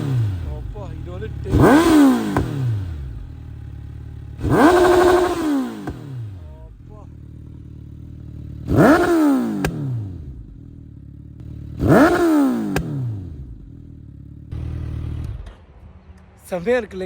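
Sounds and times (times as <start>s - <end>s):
sharp exhaust pop: 0.0s - 3.6s, 4.4s - 6.4s, 8.7s - 10.0s, 11.8s - 13.1s
motorcycle engine idling and revving: 0.0s - 16.4s.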